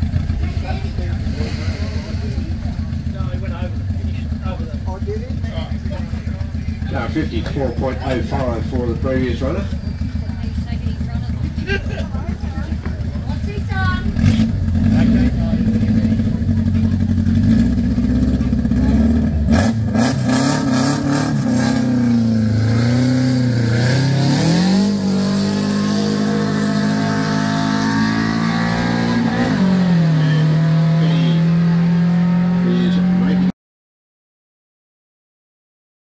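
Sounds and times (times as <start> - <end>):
race car engine revving and accelerating: 0.0 - 3.4, 13.3 - 33.5.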